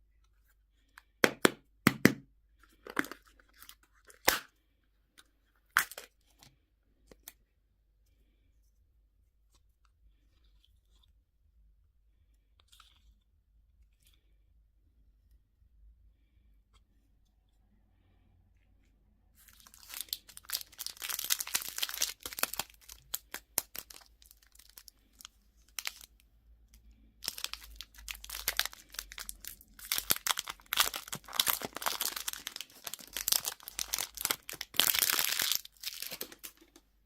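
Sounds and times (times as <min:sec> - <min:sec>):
candy wrappers crinkling and tearing: 0:02.7 - 0:04.5, 0:05.7 - 0:06.4, 0:19.4 - 0:36.8.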